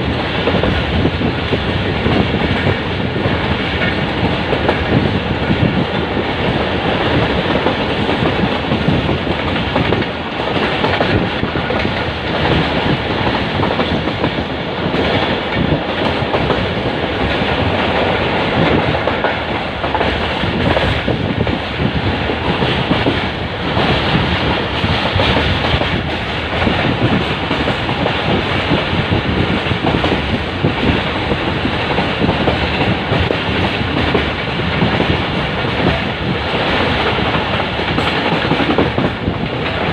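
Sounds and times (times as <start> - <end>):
train rumbling along track: 0.0 - 39.9.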